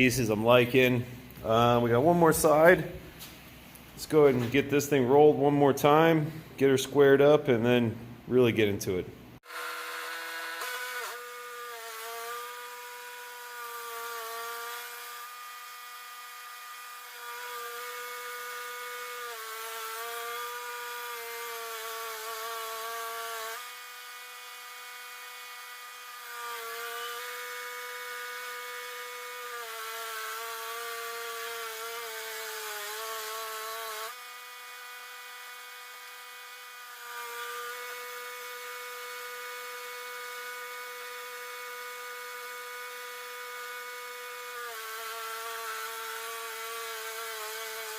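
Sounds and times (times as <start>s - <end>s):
bandsaw mill motor whine: 9.4s - 47.9s.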